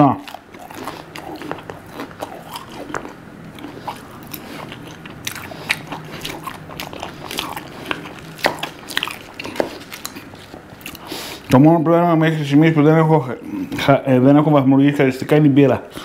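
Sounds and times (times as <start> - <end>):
chewing crisp fried food: 0.0 - 11.8
wet mouth clicks: 0.2 - 11.1.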